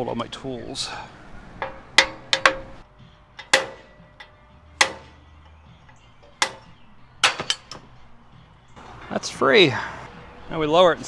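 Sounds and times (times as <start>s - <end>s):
metal tools clicking and knocking: 1.6s - 2.8s, 5.9s - 7.9s.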